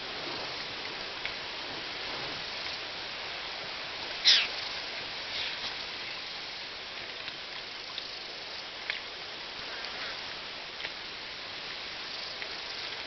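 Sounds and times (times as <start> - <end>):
outdoor ambient hiss: 0.0 - 13.0
faint chirps: 4.2 - 4.7.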